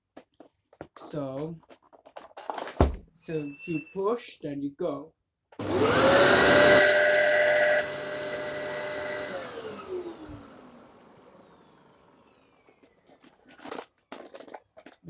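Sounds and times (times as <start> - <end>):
vacuum cleaner motor whining: 5.6 - 13.0.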